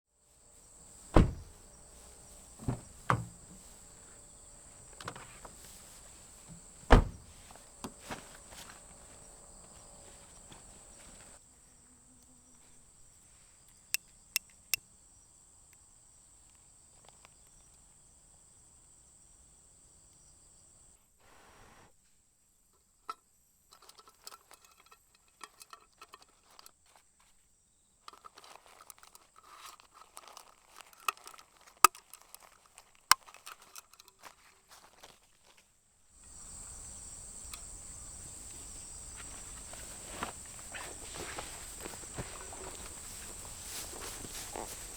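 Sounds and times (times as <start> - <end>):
insect chorus: 0.3 - 21.1, 36.2 - 44.9
rustling: 0.4 - 11.4, 28.0 - 44.9.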